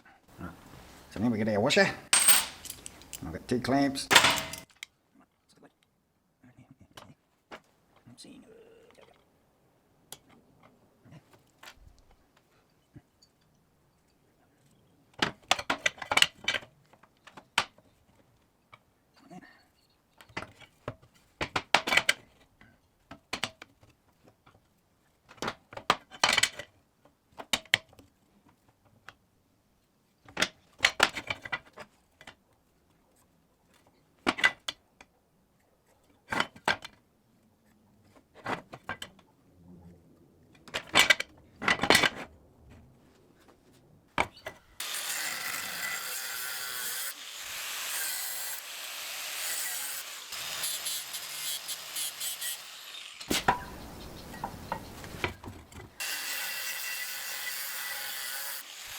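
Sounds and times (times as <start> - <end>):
steel parts knocking and clicking: 4.1 - 4.8
harsh metalworking tool noise: 44.8 - 53.7, 56.0 - 58.9.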